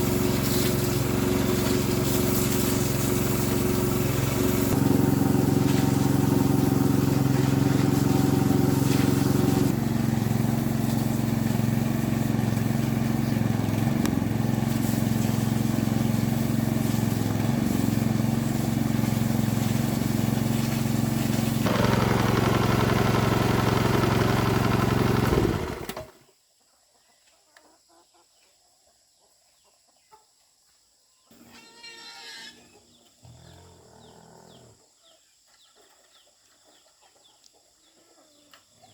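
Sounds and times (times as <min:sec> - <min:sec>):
small water pump engine running: 0:00.0 - 0:26.2.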